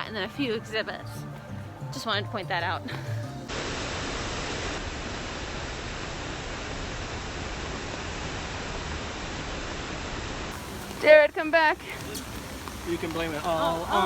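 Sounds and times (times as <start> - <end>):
heavy rain falling: 3.5 - 14.0.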